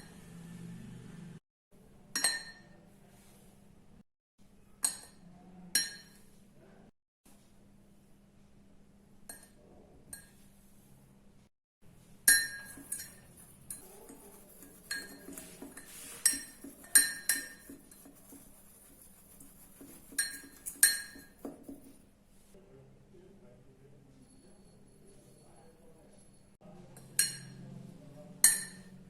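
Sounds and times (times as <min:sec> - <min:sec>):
metal spoon clinking against mug: 0:12.3 - 0:22.0
spoon scraping in mug: 0:12.3 - 0:22.0.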